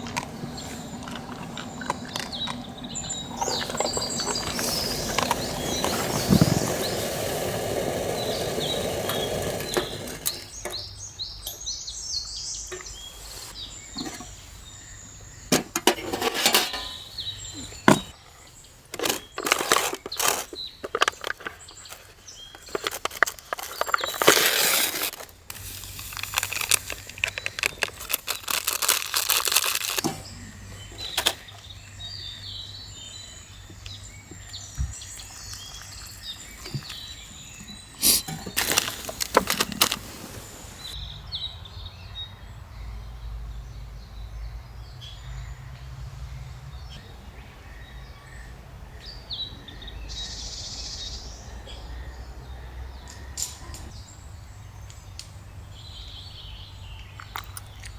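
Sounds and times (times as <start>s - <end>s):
birds chirping: 0.0s - 57.9s
cracks knocks and rustling: 33.7s - 41.0s.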